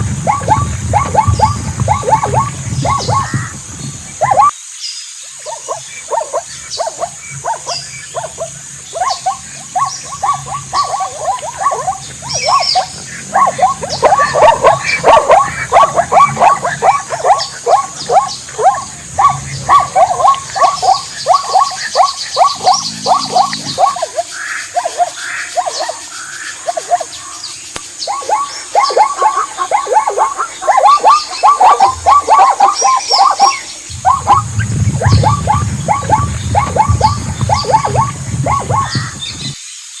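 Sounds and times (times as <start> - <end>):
animals giving rapid calls: 0.0 - 4.6, 5.4 - 39.6
low rumble: 33.8 - 39.6.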